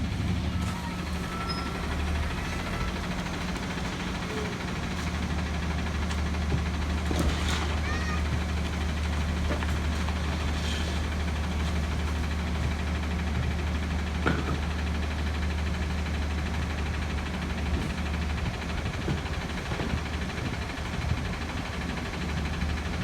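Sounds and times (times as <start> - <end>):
diesel engine running: 0.0 - 23.0
high squeal: 0.6 - 2.9.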